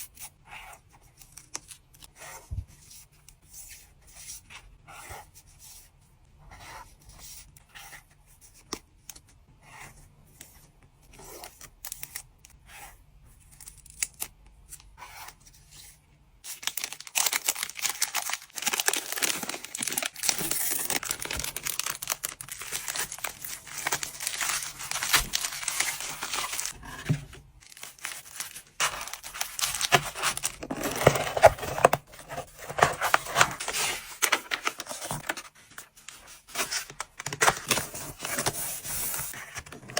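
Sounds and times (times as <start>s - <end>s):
packaging rubbing: 16.5s - 35.5s
packaging tearing and crinkling: 16.5s - 35.5s.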